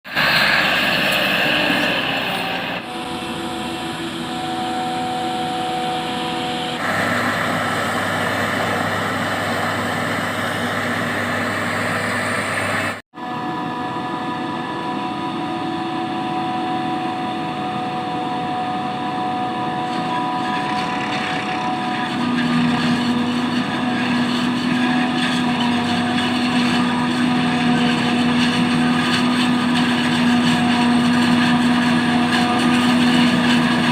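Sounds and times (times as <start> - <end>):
tractor engine hum: 0.1 - 33.9.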